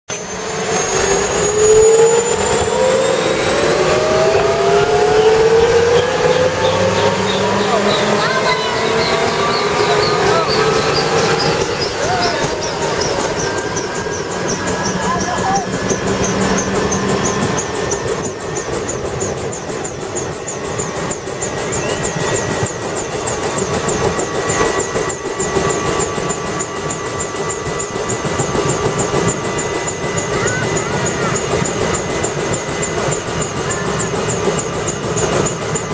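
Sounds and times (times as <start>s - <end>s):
turbine engine whine: 0.1s - 35.9s
fast regular high ticking: 6.0s - 35.9s
high whistle: 20.5s - 22.8s.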